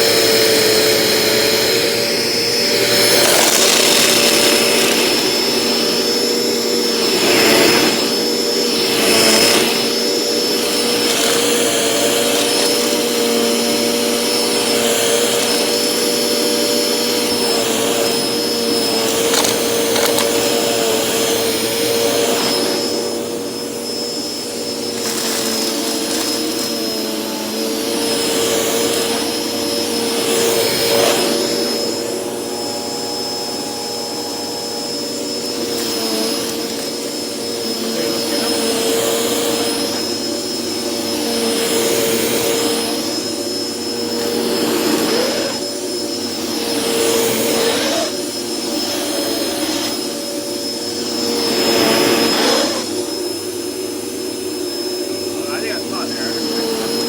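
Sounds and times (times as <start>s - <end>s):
hand vacuum running: 0.0s - 57.0s
vacuum picking up nuts: 2.1s - 23.1s.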